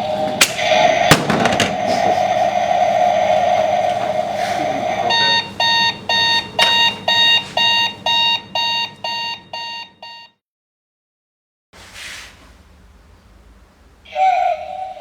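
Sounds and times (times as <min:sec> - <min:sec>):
alarm clock beeping: 0:00.0 - 0:10.4.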